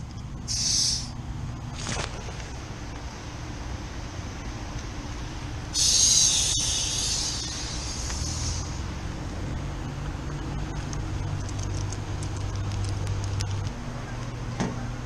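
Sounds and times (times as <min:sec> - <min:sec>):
low machine hum: 0:00.0 - 0:15.0
refrigerant hissing from hose: 0:00.5 - 0:01.1, 0:05.7 - 0:08.8.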